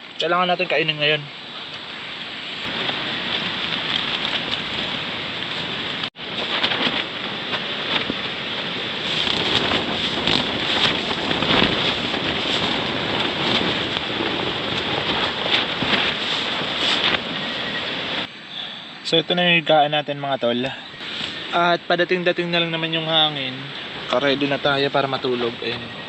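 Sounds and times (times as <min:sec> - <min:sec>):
rain: 0:00.0 - 0:18.7, 0:21.0 - 0:26.0
storm wind: 0:00.0 - 0:19.3, 0:20.5 - 0:26.0.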